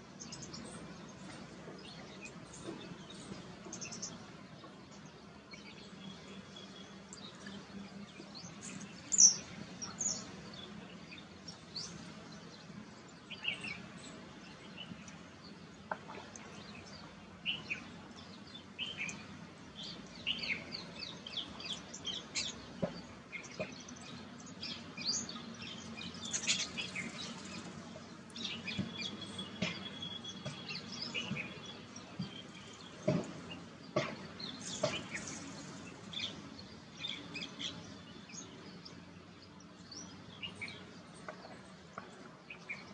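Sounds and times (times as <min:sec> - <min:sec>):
small birds chirping: 0:00.1 - 0:42.9.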